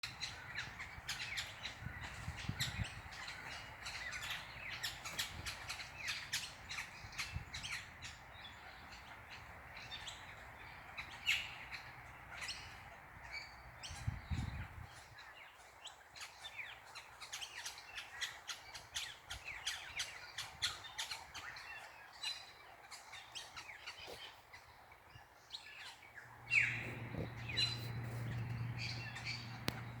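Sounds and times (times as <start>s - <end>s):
small birds chirping: 0.0s - 30.0s
low steady hum: 26.3s - 30.0s.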